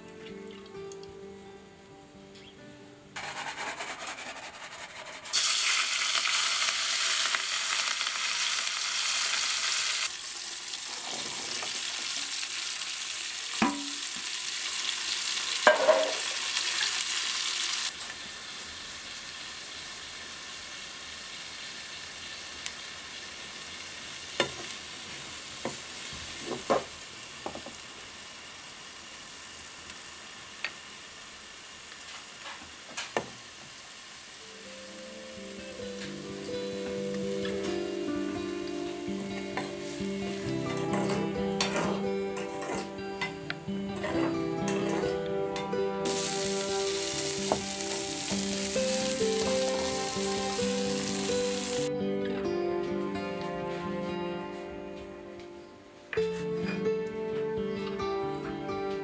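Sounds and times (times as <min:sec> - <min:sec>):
wooden spoon scraping a pot: 0:03.2 - 0:05.4
shallots and garlic sizzling in oil: 0:05.3 - 0:41.8, 0:46.0 - 0:51.9.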